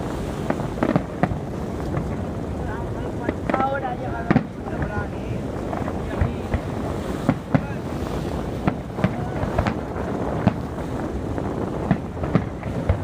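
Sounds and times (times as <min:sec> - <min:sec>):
fireworks bursting with sharp bangs: 0:00.0 - 0:13.0
wind on microphone: 0:00.0 - 0:13.0.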